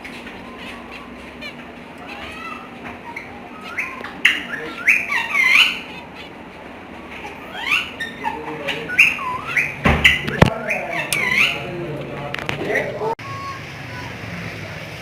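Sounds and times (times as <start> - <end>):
parrot squawking: 0.1 - 11.8.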